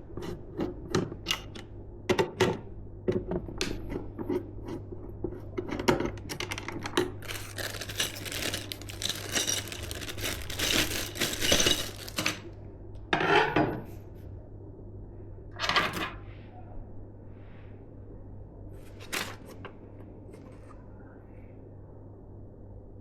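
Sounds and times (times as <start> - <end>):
plastic packaging rustling: 7.0 - 12.6.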